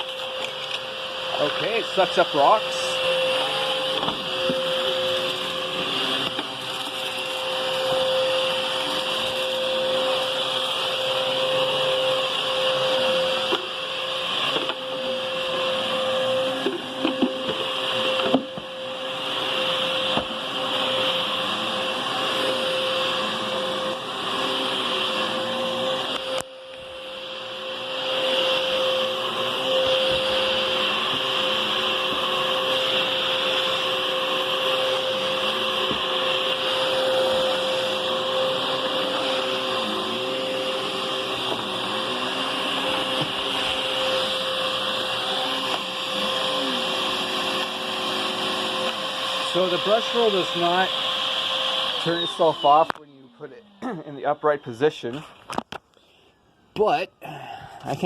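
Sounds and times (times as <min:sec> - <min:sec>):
vacuum cleaner running: 0:00.0 - 0:55.6.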